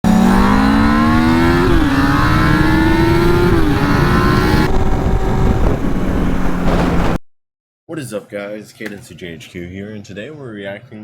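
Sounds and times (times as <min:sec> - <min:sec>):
vehicle engine accelerating: 0:00.0 - 0:07.2.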